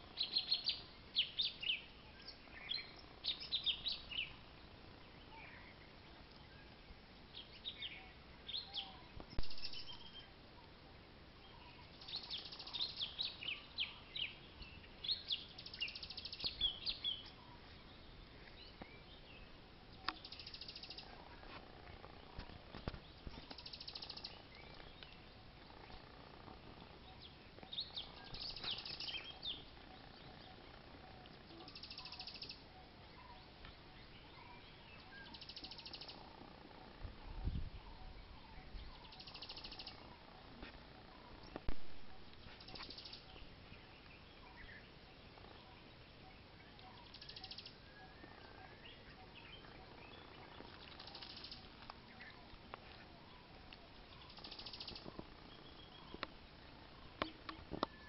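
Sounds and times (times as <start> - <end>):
birds chirping: 0.0 - 58.0
buzzy bird calls: 19.4 - 58.0.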